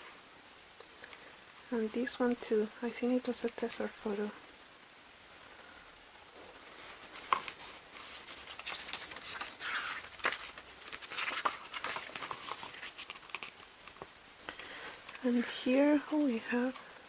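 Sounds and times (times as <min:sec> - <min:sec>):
pages turning: 0:06.7 - 0:14.1.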